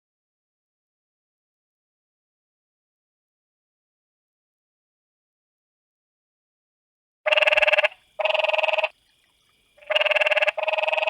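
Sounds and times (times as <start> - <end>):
frog trilling: 7.3 - 9.0, 9.8 - 11.0.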